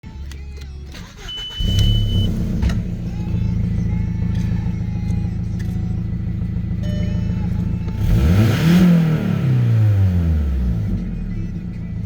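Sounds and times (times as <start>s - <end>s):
car engine starting and idling: 0.0s - 12.0s
high steady tone: 3.1s - 9.0s.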